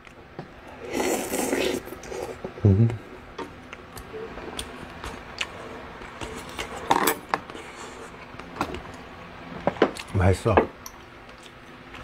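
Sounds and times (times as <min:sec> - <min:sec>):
person chewing food: 0:03.6 - 0:06.7.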